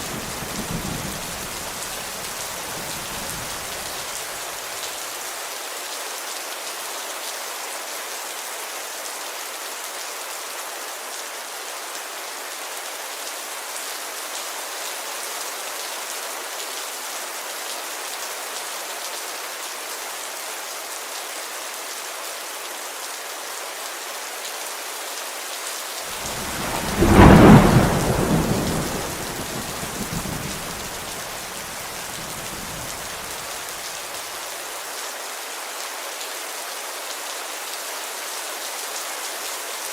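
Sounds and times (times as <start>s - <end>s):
heavy rain on a window: 0.0s - 13.4s, 23.8s - 39.9s
thunderclap rumbling: 26.2s - 33.4s.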